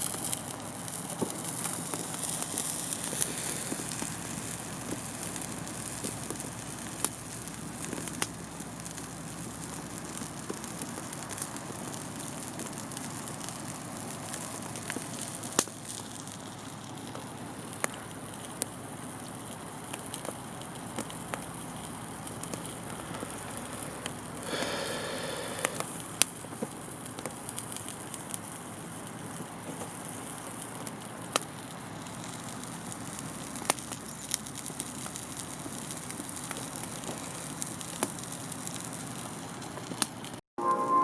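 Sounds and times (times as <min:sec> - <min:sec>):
campfire crackling: 0:00.0 - 0:41.0
steady hiss: 0:21.6 - 0:26.2.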